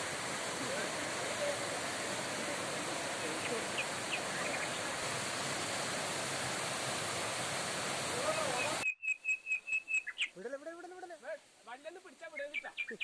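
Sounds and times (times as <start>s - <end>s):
waterfall roaring: 0.0s - 8.8s
bird chirps: 8.4s - 10.4s, 12.3s - 13.0s.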